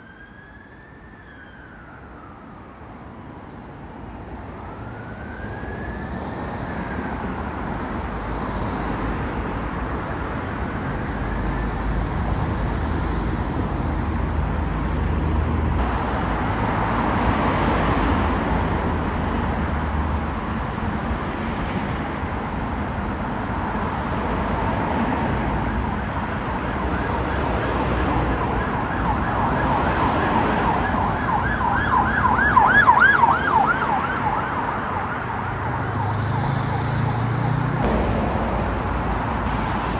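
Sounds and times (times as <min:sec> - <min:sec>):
emergency vehicle siren: 0:00.0 - 0:07.9, 0:10.7 - 0:12.1, 0:24.5 - 0:37.9
vehicle engine and road noise: 0:01.7 - 0:39.9.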